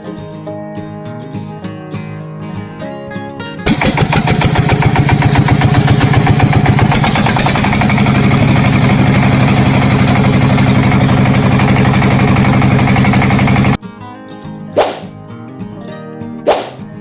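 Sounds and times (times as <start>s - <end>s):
tractor engine chugging and idling: 3.7s - 13.8s.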